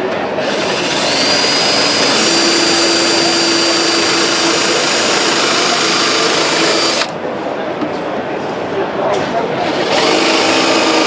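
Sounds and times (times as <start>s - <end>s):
power tool hissing: 0.5s - 7.1s.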